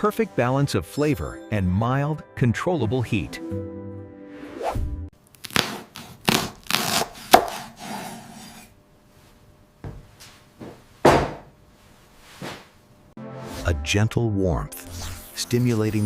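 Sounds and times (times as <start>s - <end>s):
knife chopping on cutting board: 5.5s - 8.6s.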